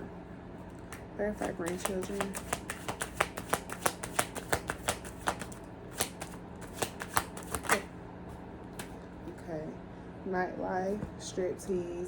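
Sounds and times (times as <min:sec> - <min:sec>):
cards being shuffled: 0:00.7 - 0:07.9.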